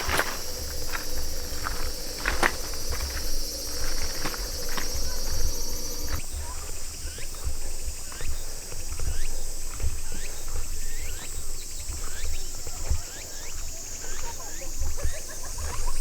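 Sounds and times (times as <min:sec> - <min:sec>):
footsteps: 0:00.0 - 0:06.2
rising bird calls: 0:00.0 - 0:06.2
insect buzzing: 0:00.0 - 0:06.4.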